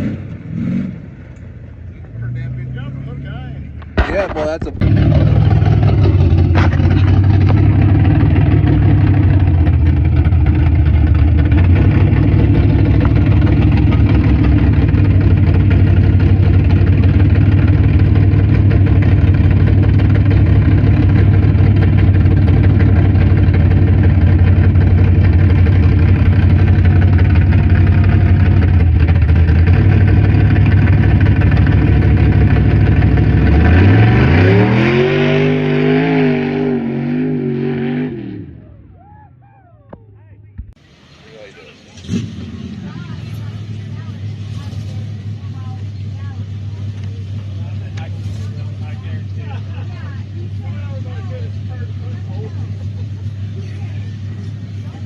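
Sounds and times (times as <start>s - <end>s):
truck engine idling loudly: 1.6s - 36.1s, 38.4s - 55.0s.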